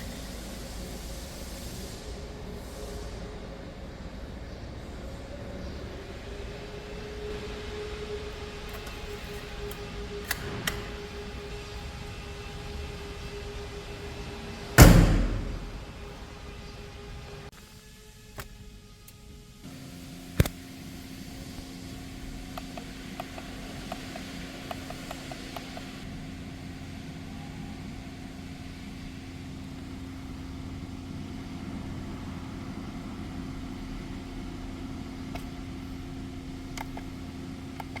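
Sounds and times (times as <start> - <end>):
car engine idling: 19.7 - 38.0.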